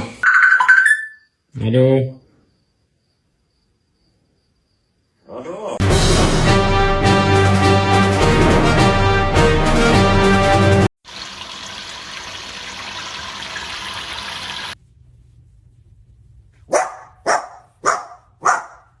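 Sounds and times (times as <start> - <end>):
music: 5.8 - 10.9
dog barking: 16.7 - 19.0.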